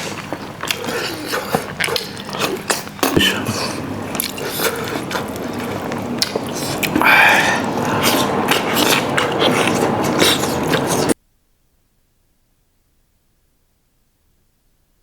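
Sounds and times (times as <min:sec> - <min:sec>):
wet chewing and smacking: 0:00.0 - 0:11.2.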